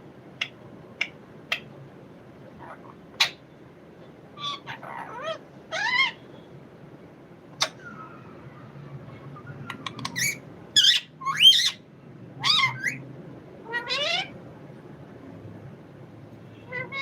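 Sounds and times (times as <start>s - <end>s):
parrot calls: 2.6s - 3.4s, 4.4s - 6.2s, 7.6s - 13.0s, 13.6s - 14.4s, 16.7s - 17.0s.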